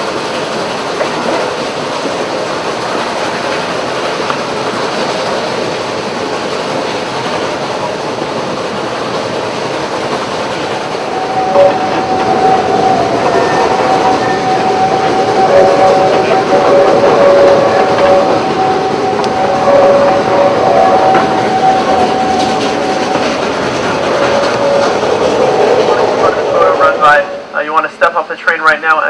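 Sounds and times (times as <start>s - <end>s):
train cars rumbling and clattering: 0.0s - 29.0s
steady high-pitched tone: 10.9s - 27.5s.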